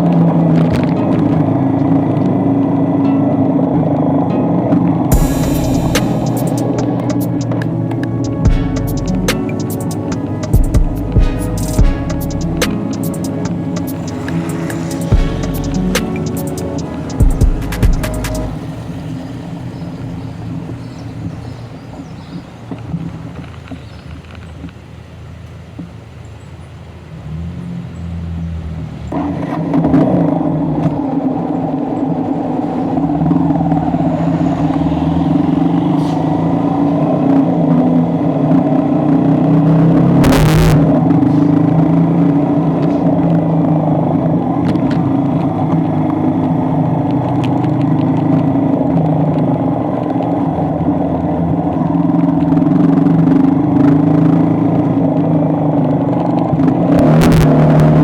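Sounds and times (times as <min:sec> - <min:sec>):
vehicle engine running: 0:05.1 - 0:21.8.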